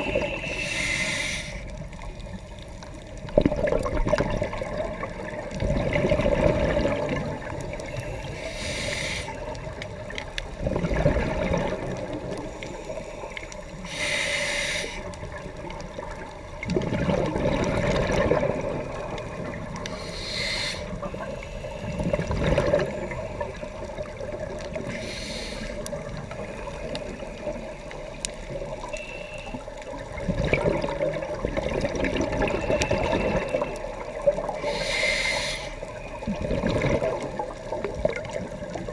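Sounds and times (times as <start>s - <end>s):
hissing regulator inhale: 0.0s - 1.8s, 7.9s - 9.6s, 12.5s - 15.2s, 19.9s - 22.2s, 24.8s - 27.3s, 34.6s - 36.0s
exhaled bubbles gurgling: 0.0s - 38.9s.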